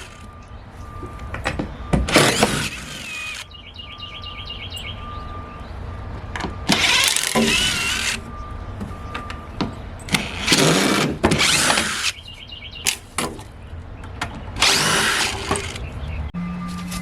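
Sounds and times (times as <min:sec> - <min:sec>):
power drill bursts: 0:02.1 - 0:03.4, 0:06.7 - 0:08.2, 0:10.1 - 0:12.2, 0:14.6 - 0:15.8.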